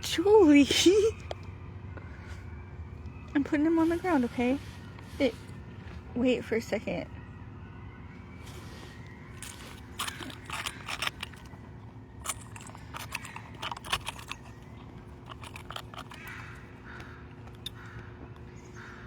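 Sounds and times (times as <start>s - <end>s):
potato chips crunching: 8.5s - 11.6s, 12.2s - 16.8s.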